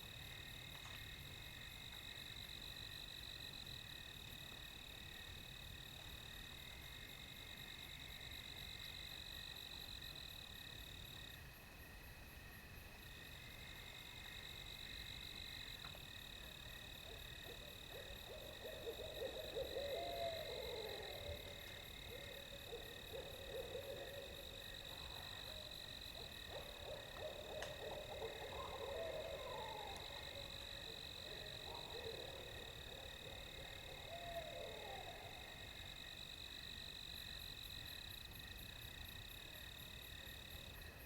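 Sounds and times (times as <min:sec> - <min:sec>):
night insect chorus: 0:00.0 - 0:41.0
owls hooting: 0:17.0 - 0:35.7.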